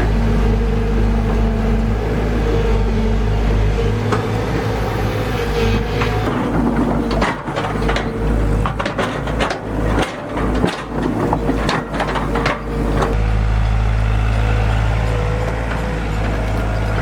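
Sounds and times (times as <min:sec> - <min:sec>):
excavator diesel engine running: 0:00.0 - 0:17.0
knocks and clatter: 0:05.6 - 0:13.2.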